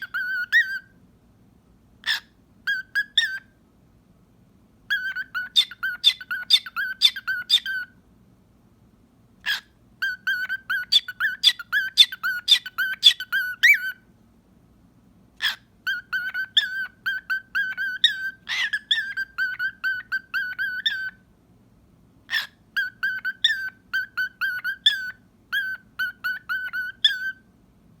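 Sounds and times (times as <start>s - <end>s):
cockatiel whistled chirps: 0.0s - 1.0s, 2.0s - 3.5s, 4.9s - 7.9s, 9.5s - 14.0s, 15.4s - 21.2s, 22.3s - 27.4s.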